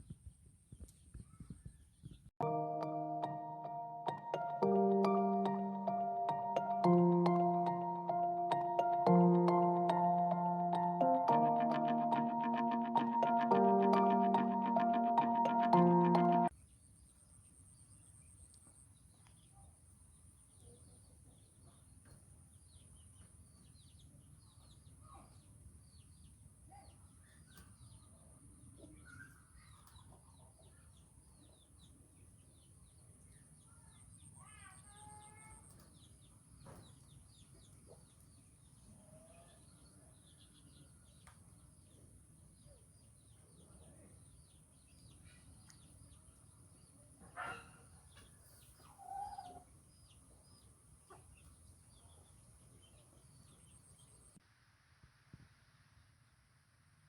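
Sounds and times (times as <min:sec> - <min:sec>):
small bird chirps: 0:48.6 - 0:50.1.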